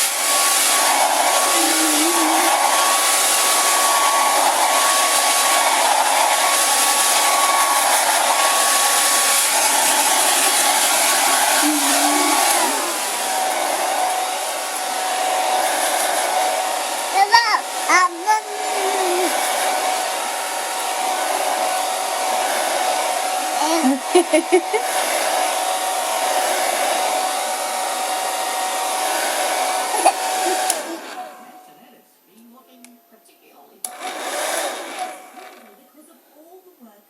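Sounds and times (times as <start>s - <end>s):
hair dryer blowing with whine: 0.0s - 31.9s, 33.8s - 35.9s.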